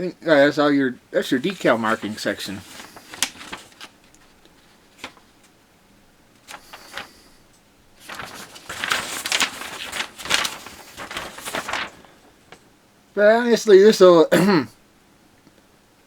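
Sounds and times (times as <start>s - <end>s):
paper rustling and crinkling: 1.2s - 5.6s, 6.3s - 12.7s.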